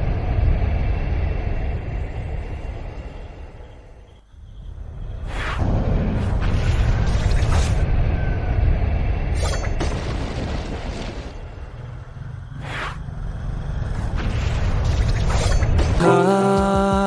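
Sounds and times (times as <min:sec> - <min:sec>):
electronic music: 0:16.0 - 0:17.0.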